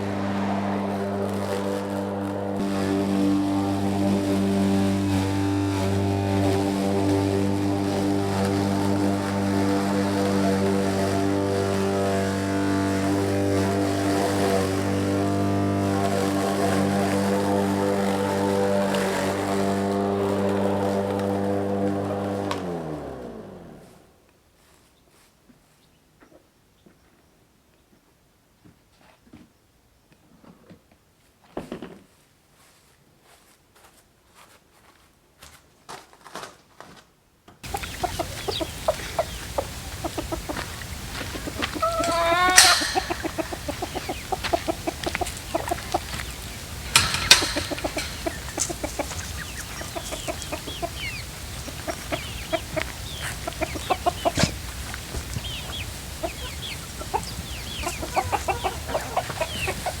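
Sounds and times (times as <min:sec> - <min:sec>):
chicken drawn-out rising call: 0:37.6 - 1:00.0
chicken squawk: 0:37.6 - 1:00.0
chickens clucking: 0:37.6 - 1:00.0.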